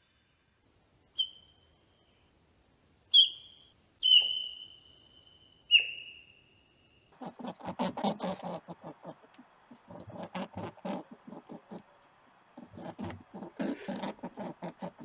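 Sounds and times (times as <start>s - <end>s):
high whistled calls: 1.2s - 1.7s, 3.1s - 7.1s.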